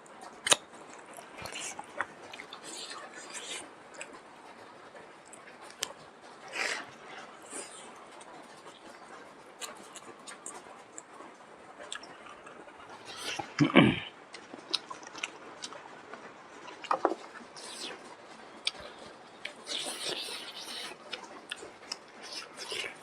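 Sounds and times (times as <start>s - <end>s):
chewing: 0.1s - 23.0s
wet mouth clicks: 18.7s - 23.0s.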